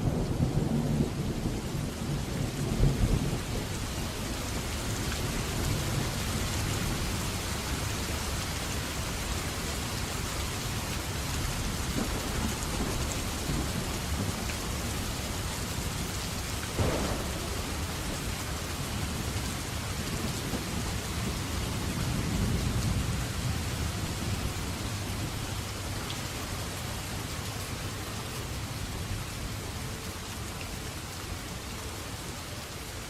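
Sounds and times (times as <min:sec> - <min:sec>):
heavy rain falling: 0:00.0 - 0:33.0
thunder rumbling: 0:16.7 - 0:25.8.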